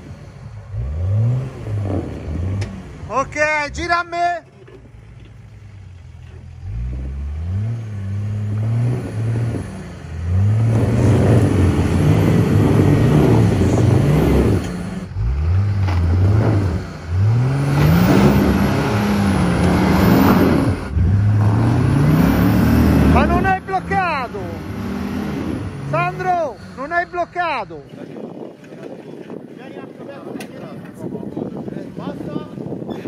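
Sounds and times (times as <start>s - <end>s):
engine revving hard: 0.7s - 2.9s, 6.7s - 27.2s.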